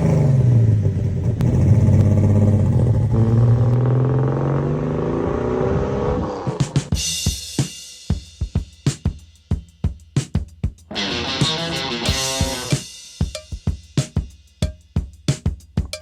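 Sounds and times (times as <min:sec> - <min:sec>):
car engine accelerating: 0:00.0 - 0:06.9
music drum hits: 0:10.9 - 0:14.8.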